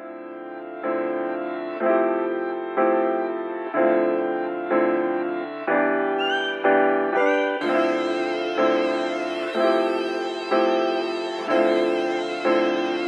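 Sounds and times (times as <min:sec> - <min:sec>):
slow instrumental music chords: 0:05.8 - 0:13.0.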